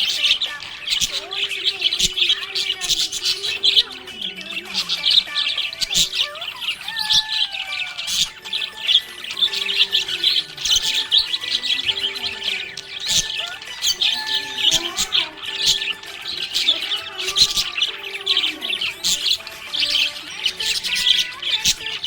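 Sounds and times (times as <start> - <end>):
budgie squawks: 0.0 - 22.0
budgies chirping: 0.0 - 22.0.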